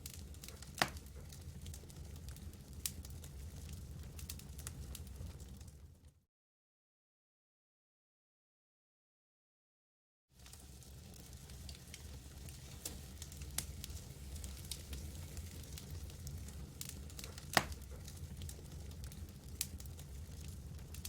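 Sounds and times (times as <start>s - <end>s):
campfire wood crackling: 0.0s - 6.0s, 10.4s - 21.0s
low fire rumble: 0.0s - 6.2s, 10.4s - 21.0s.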